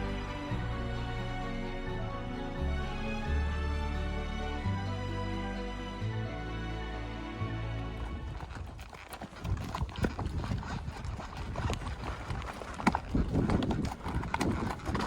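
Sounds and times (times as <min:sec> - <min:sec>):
horse hooves clip-clopping: 0:07.7 - 0:15.0.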